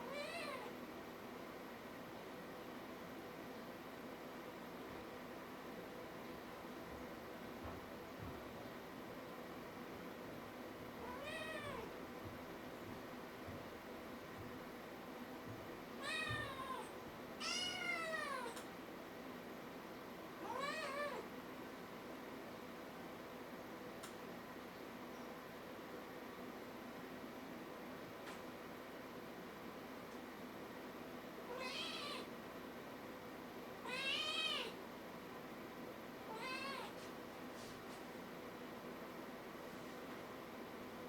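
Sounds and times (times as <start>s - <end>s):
kitten meowing: 31.5s - 32.3s.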